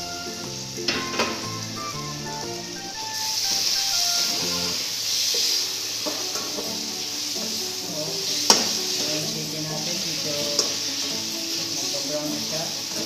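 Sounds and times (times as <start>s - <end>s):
chicken wings sizzling in oil: 0.0s - 13.0s
spatula scraping wok: 3.1s - 13.0s
spatula clacking against wok: 8.5s - 9.2s.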